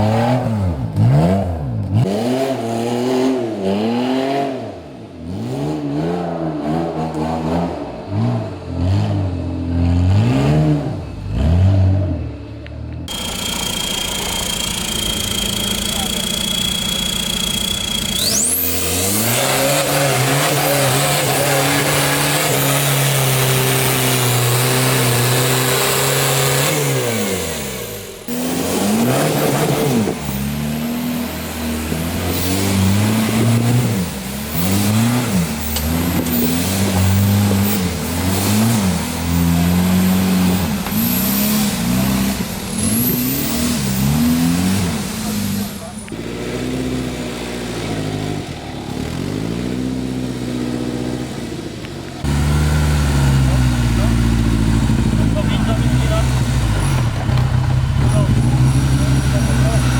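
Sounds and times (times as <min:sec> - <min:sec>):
vehicle engine revving: 0:00.0 - 0:59.9
high whine sweeping upward: 0:13.1 - 0:19.8.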